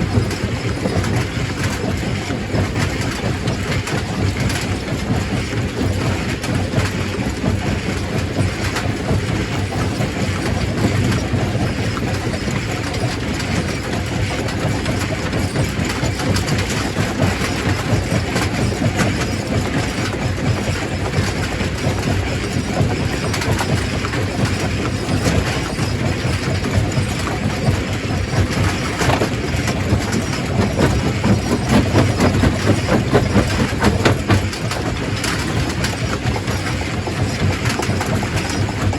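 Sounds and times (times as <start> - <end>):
low machinery hum: 4.8 - 38.9
rock crusher clattering: 13.4 - 38.9.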